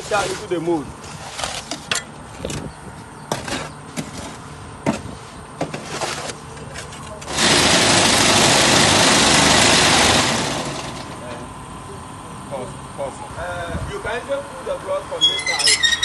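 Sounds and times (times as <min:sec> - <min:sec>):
vibrator buzzing: 0:07.3 - 0:13.0.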